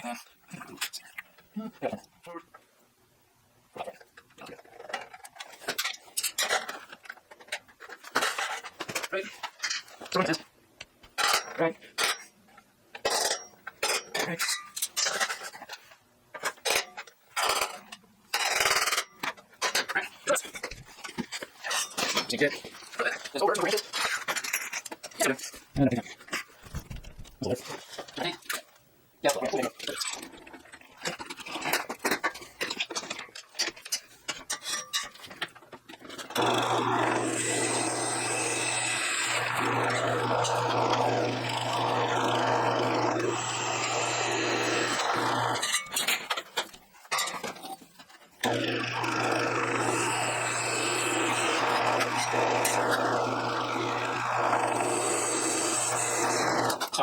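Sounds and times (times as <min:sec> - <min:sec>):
metal parts clinking and scraping: 0:04.6 - 0:10.4, 0:11.2 - 0:12.3, 0:13.0 - 0:26.6, 0:29.8 - 0:36.5, 0:45.3 - 0:48.5
power tool humming: 0:36.3 - 0:46.0, 0:48.4 - 0:56.9.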